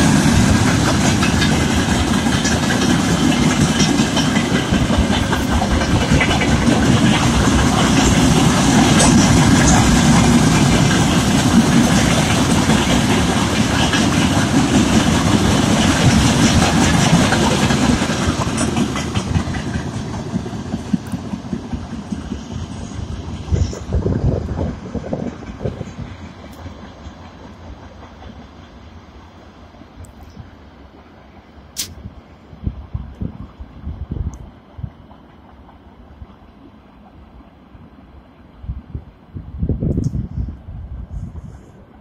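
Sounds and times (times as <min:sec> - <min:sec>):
train wheels clattering over rail joints: 0:00.0 - 0:28.7.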